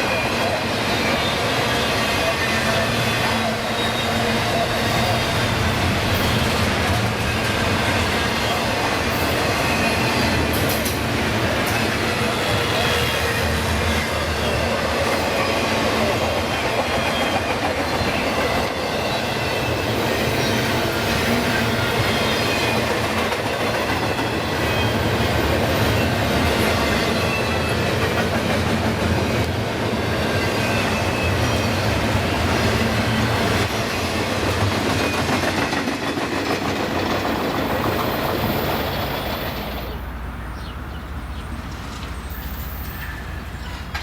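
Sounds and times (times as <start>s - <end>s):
freight train wheels rumbling on rail: 0.0s - 44.0s
high-pitched wheel squeals: 1.0s - 6.6s.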